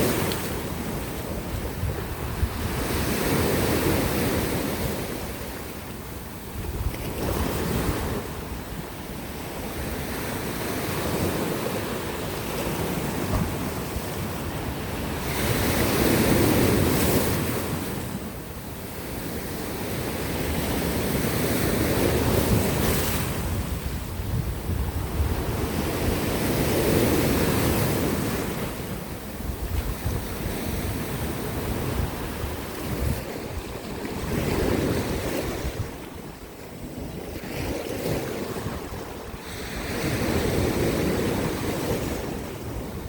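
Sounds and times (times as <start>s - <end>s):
wind buffeting microphone: 0.0s - 5.5s, 6.4s - 8.9s, 21.5s - 43.0s
sea waves breaking on rocks: 0.0s - 5.8s, 6.6s - 8.6s, 9.6s - 18.4s, 29.8s - 43.0s.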